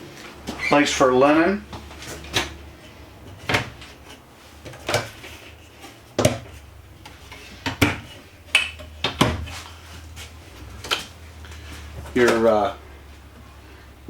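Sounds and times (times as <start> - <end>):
low steady hum: 0.0 - 14.0
cabinet doors and drawers clacking: 0.5 - 11.1.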